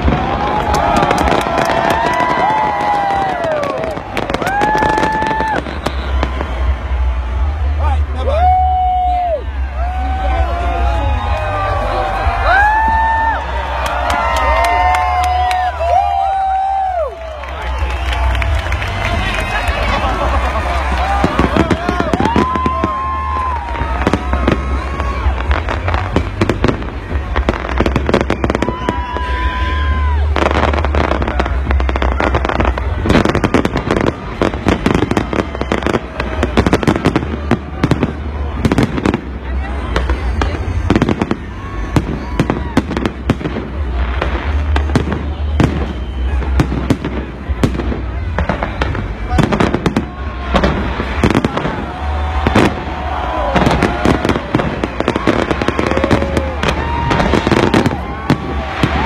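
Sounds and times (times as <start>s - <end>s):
falling firework whistle: 0.0s - 7.0s, 27.4s - 39.2s, 44.5s - 59.0s
fireworks bangs and crackles: 0.0s - 59.0s.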